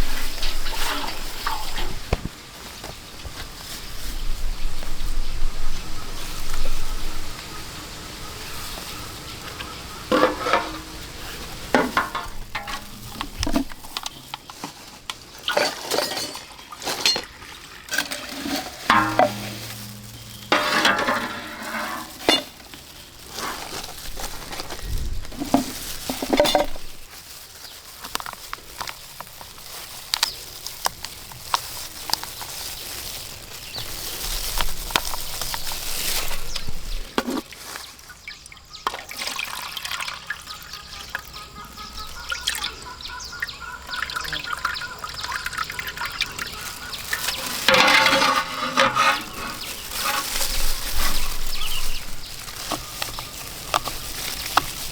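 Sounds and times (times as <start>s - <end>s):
utensil scraping cookware: 0.0s - 2.2s, 10.1s - 14.2s, 15.5s - 22.7s, 23.3s - 24.7s, 47.3s - 54.9s
frying sizzle: 0.0s - 54.9s.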